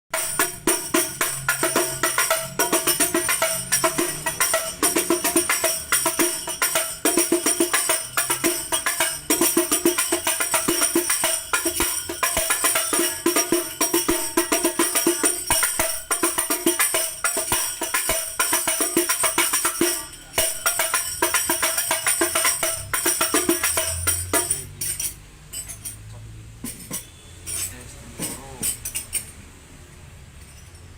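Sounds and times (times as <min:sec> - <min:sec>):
bright jingling shimmer: 0:00.9 - 0:25.9.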